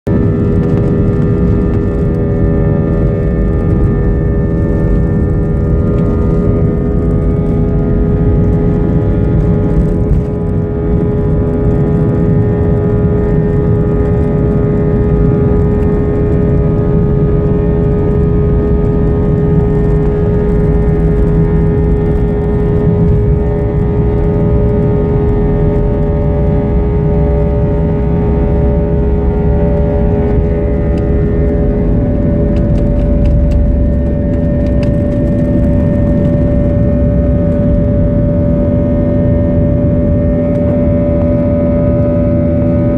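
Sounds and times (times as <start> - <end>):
jet engines roaring: 0.1 - 42.9.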